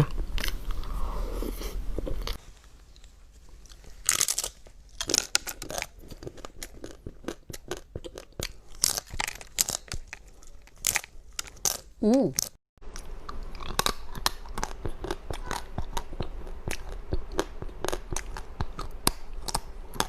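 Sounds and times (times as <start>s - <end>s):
chewing crunchy food: 3.5s - 20.0s
mouth sounds: 12.0s - 12.5s.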